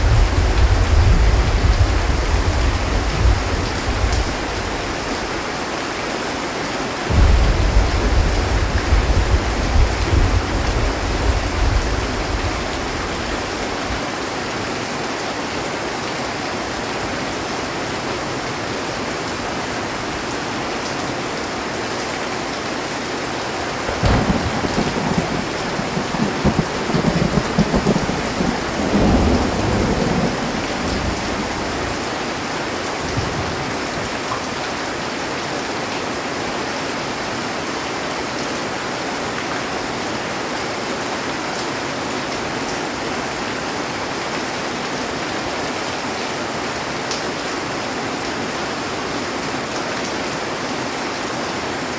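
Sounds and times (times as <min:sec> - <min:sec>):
low rumble of thunder: 0:00.0 - 0:05.4, 0:07.1 - 0:14.0, 0:23.7 - 0:34.0
thunderclap: 0:00.0 - 0:05.4, 0:07.1 - 0:13.8, 0:23.7 - 0:32.2
heavy rain on a metal roof: 0:00.0 - 0:51.9.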